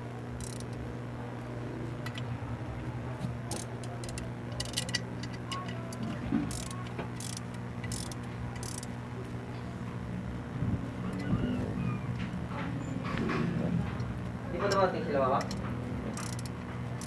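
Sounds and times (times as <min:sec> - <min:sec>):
steady low hum: 0:00.0 - 0:17.0
metallic clicks of hand tools: 0:00.4 - 0:00.8, 0:03.5 - 0:08.9, 0:14.7 - 0:16.6.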